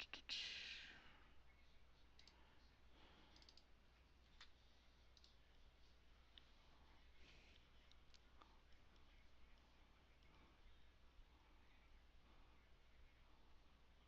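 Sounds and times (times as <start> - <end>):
computer mouse clicks: 2.0 - 2.4, 3.3 - 3.7, 4.4 - 5.6.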